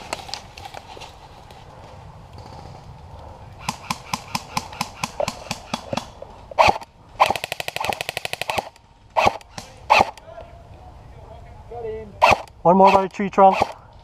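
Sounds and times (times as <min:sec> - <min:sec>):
airsoft rifle full-auto burst: 0:12.2 - 0:13.8
airsoft rifle single shots: 0:12.2 - 0:13.8.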